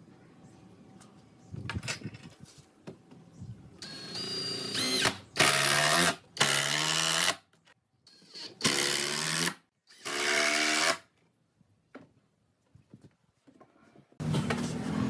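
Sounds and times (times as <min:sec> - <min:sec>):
power tool motor whining: 0:03.8 - 0:07.4.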